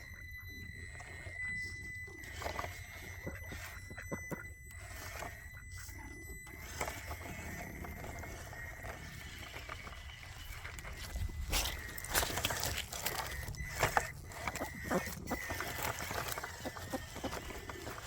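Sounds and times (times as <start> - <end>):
electric motor whine: 0.0 - 18.0
tires scraping on rock: 6.6 - 18.0.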